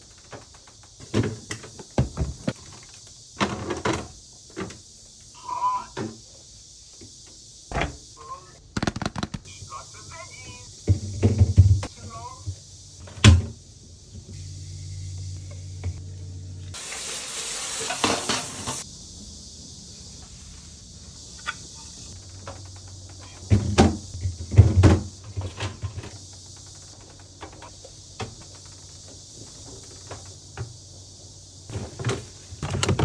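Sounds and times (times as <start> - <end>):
hissing burst: 6.3 - 10.6, 16.7 - 24.2
loud thumps: 8.8 - 9.5.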